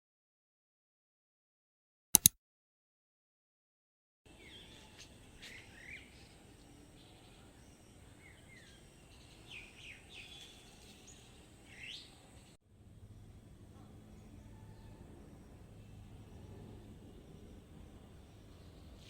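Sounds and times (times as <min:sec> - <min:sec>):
birds chirping: 0:04.3 - 0:12.6, 0:13.7 - 0:19.0.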